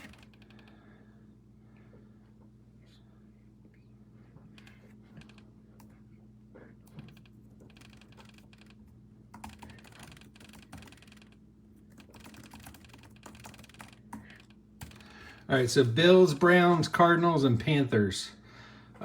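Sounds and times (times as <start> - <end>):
faint low hum: 0.0 - 19.0
typing on keyboard: 6.9 - 15.1.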